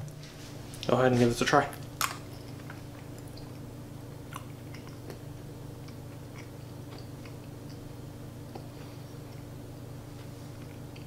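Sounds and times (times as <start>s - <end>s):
quiet chewing: 1.7s - 7.9s, 8.5s - 11.0s.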